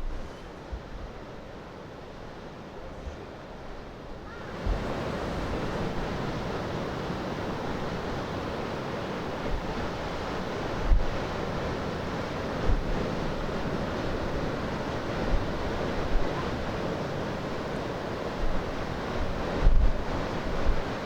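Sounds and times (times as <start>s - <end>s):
surf: 0.0s - 21.0s
wind: 0.0s - 21.0s
wind thumping on microphone: 4.5s - 6.1s, 9.4s - 11.6s, 12.6s - 16.7s, 18.3s - 21.0s.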